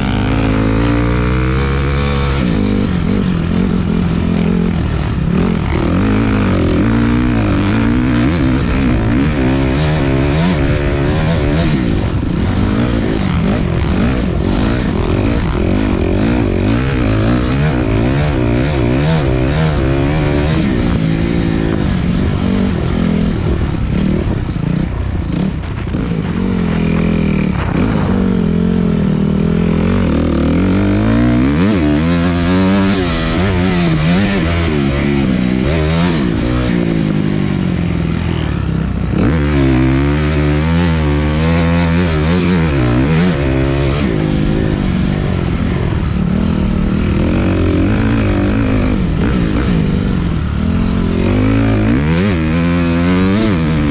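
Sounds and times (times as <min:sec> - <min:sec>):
rushing noise: 0:00.0 - 0:41.9
dirt bike engine revving: 0:00.0 - 0:53.9.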